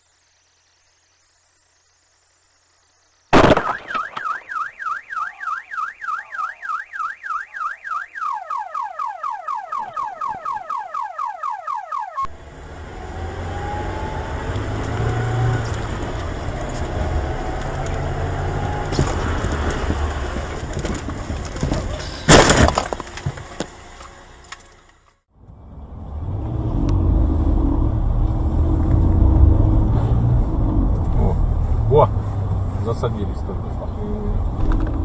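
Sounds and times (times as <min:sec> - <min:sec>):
car alarm warbling: 0:03.6 - 0:19.9
vehicle road noise rumble: 0:12.2 - 0:35.0.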